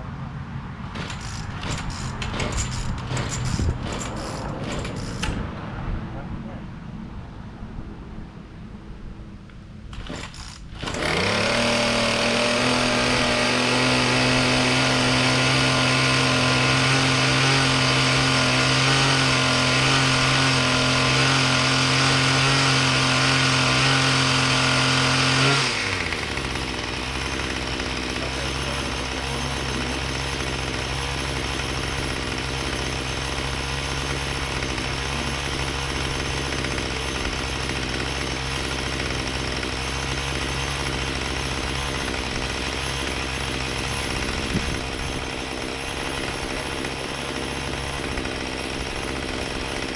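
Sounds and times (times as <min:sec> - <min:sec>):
small tiller engine running: 0:00.9 - 0:05.4, 0:09.9 - 0:49.9.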